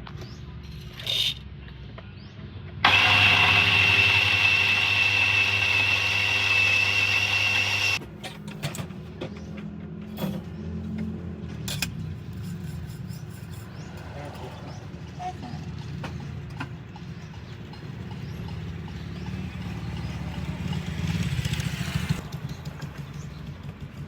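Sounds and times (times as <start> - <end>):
small machine motor whining: 2.8 - 8.0.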